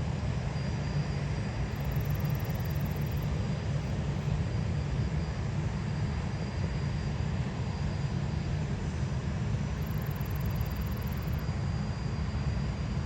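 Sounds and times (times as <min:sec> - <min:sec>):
faint high whine: 0:00.5 - 0:05.4, 0:09.7 - 0:12.8.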